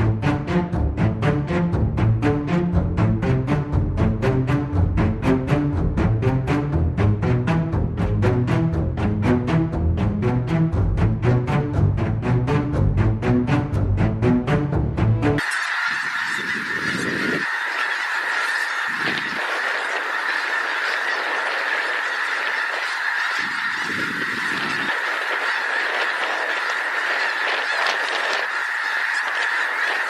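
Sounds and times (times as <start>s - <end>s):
music: 0.0s - 15.4s
large flock of birds calling: 15.4s - 30.0s.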